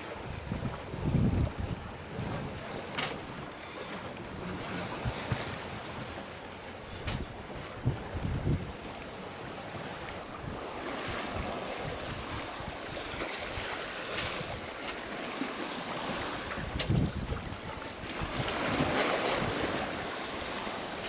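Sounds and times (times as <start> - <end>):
water splashing along hull: 0.0 - 21.0
wind buffeting microphone: 0.2 - 6.2, 6.8 - 9.0, 9.6 - 21.0.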